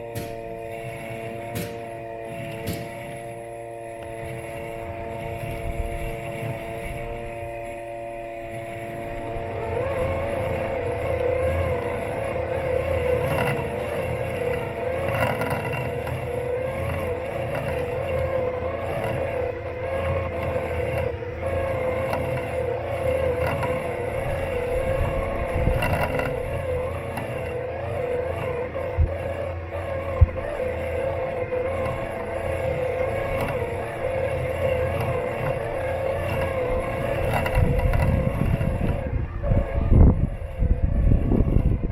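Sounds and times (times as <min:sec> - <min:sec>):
robotic lawn mower motors whining: 0:00.0 - 0:41.9
wavering whine: 0:00.0 - 0:41.9
low rumble: 0:36.4 - 0:41.9.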